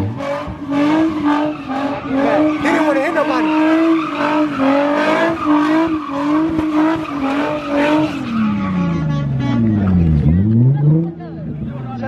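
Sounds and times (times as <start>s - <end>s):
car engine revving high: 0.0s - 11.7s
tyres skidding and squealing: 0.0s - 12.0s.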